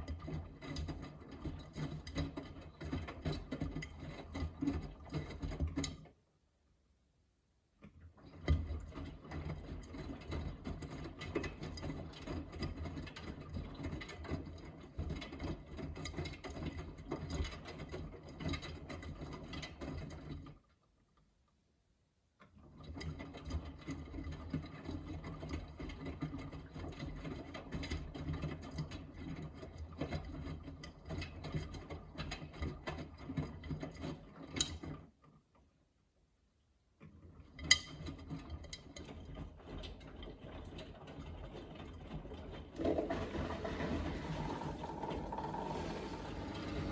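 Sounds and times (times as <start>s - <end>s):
washing machine drum churning: 39.1s - 46.9s.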